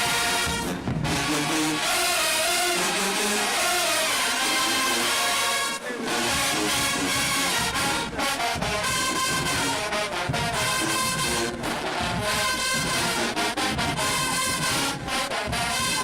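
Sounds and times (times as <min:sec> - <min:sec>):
drum hits: 0:00.0 - 0:02.3, 0:06.1 - 0:16.0
marching band brass playing: 0:00.0 - 0:16.0.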